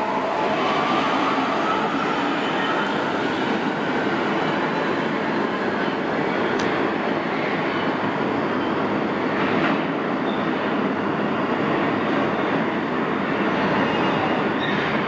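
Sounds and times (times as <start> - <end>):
subway train wheels rumbling: 0.0 - 15.0.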